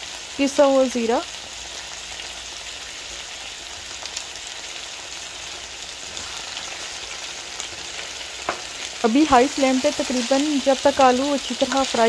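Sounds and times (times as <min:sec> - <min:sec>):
potatoes sizzling in oil: 0:00.0 - 0:12.0
spatula tapping pan: 0:08.4 - 0:08.7.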